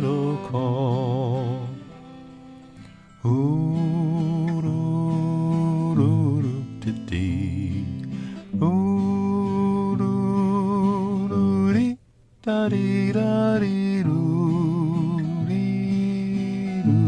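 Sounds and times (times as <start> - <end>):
acoustic guitar: 0.0 - 17.0.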